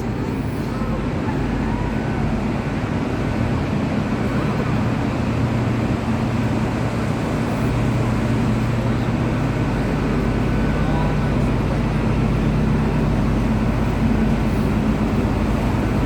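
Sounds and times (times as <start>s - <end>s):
train carriage rumble: 0.0s - 16.0s.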